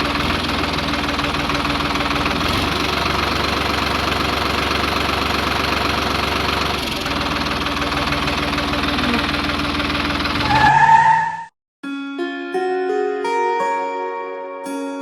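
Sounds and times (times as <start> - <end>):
vehicle engine idling: 0.0 - 11.4.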